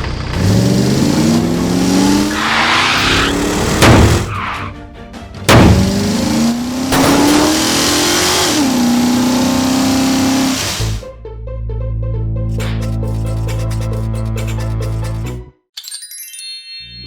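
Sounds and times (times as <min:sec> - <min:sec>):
sudden loud hits: 0:03.7 - 0:04.4, 0:05.5 - 0:06.3
cartoon engine revving: 0:05.5 - 0:11.0.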